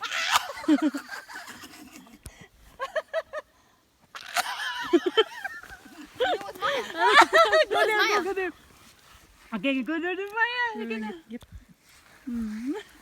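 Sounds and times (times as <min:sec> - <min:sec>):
person giggling: 0:04.4 - 0:08.3
person speaking: 0:06.2 - 0:08.6.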